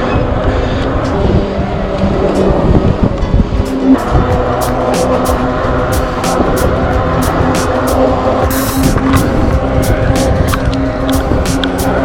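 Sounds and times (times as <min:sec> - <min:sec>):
faint steady tones: 0:00.0 - 0:12.0
wind buffeting microphone: 0:00.0 - 0:12.0.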